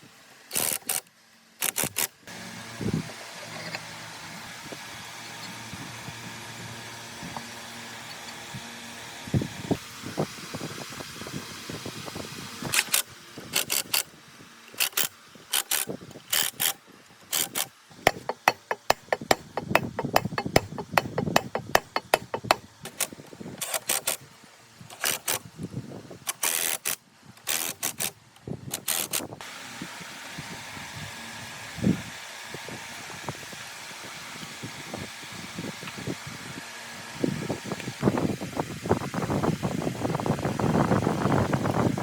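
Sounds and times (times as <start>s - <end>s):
metal tools knocking and clicking: 17.4s - 23.0s.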